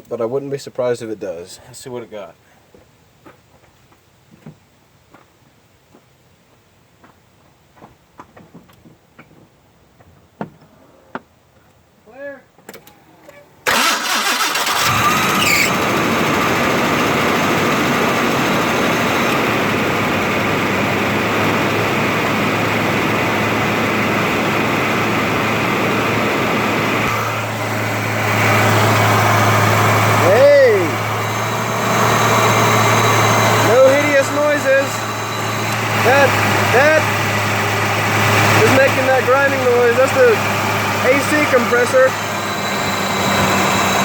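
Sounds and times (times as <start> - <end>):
truck engine starting and running: 13.7 - 44.0
grinding noise: 22.6 - 44.0.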